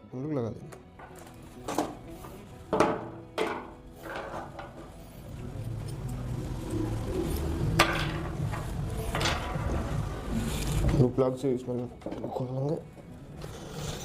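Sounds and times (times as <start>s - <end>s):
low handling rumble: 5.3s - 10.5s.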